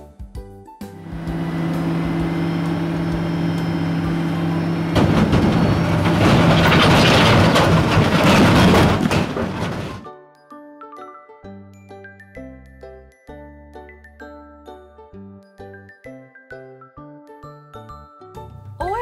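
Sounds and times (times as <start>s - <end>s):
diesel truck engine humming: 1.0s - 10.0s
rattling rush of noise: 1.1s - 10.0s.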